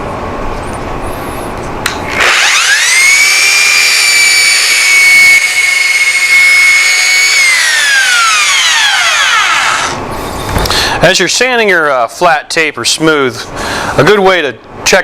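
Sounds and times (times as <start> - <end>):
electric belt sander whining: 2.1 - 10.1.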